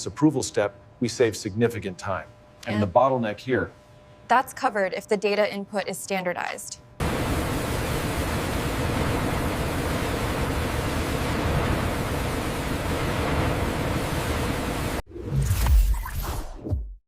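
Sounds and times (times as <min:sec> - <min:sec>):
faint hum: 0:00.0 - 0:15.0
steady rushing noise: 0:07.0 - 0:15.0.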